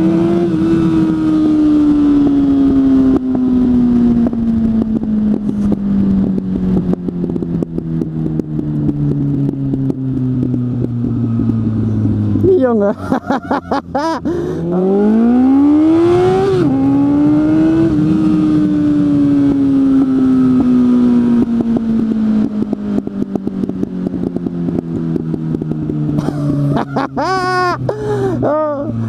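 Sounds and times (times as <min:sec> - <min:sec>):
motorcycle engine accelerating: 0:00.0 - 0:29.0
exhaust crackling and popping: 0:03.0 - 0:14.7, 0:20.6 - 0:29.0.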